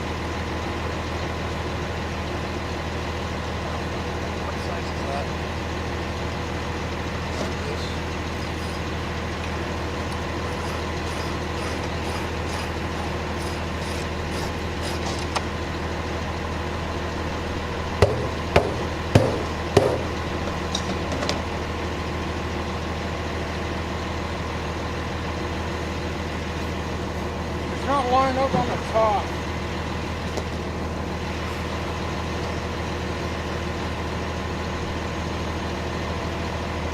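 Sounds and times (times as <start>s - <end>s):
truck engine idling: 0.0s - 36.9s
sharp metal clanks: 18.0s - 21.0s.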